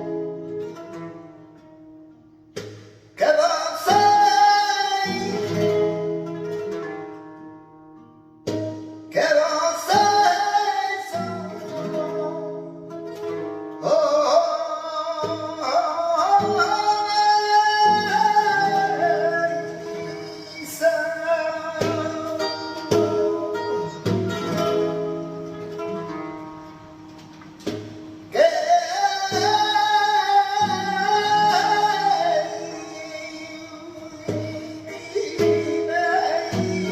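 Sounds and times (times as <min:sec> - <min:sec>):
plucked acoustic guitar: 0:00.0 - 0:36.9
person singing melismatic phrases: 0:28.4 - 0:36.9.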